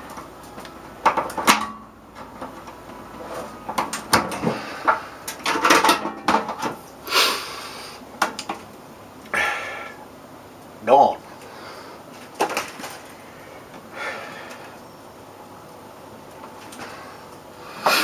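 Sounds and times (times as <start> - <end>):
knocks against microwave metal case: 1.0 - 2.6, 3.7 - 6.8.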